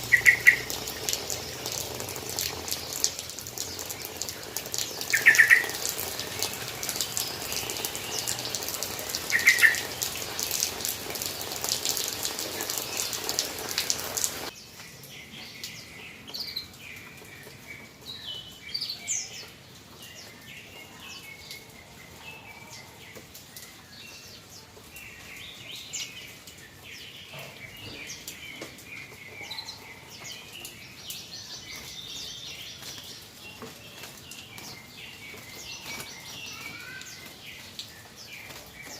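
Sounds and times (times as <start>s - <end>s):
water spraying with a hiss: 0.0s - 14.5s.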